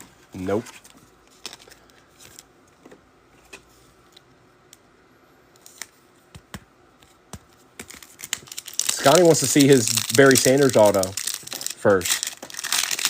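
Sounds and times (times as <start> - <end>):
cards clicking and tapping: 6.3 - 8.5.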